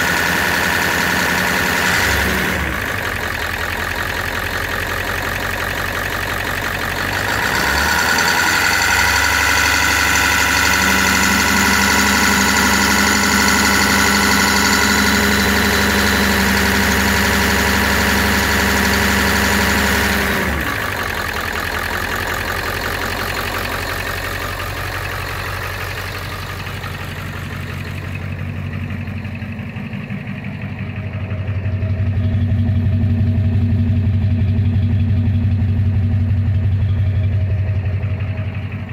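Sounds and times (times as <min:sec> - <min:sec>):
diesel engine idling: 0:00.0 - 0:38.9
deep hum: 0:20.7 - 0:38.9.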